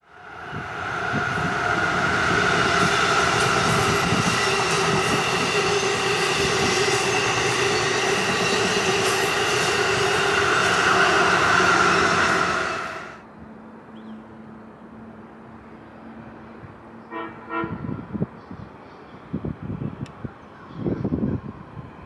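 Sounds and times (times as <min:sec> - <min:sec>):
train high whine: 0:00.0 - 0:13.3
train wheels rumbling and clattering: 0:00.4 - 0:13.2.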